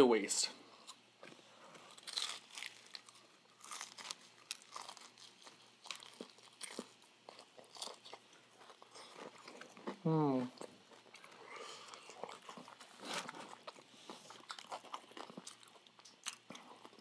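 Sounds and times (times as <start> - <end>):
crunching fried chicken: 1.7 - 17.0.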